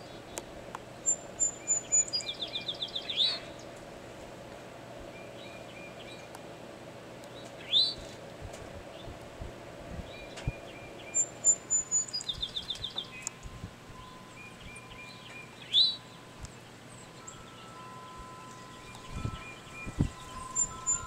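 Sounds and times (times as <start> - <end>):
songbirds singing: 0.0 - 21.0
bird high notes and trill: 10.9 - 21.0.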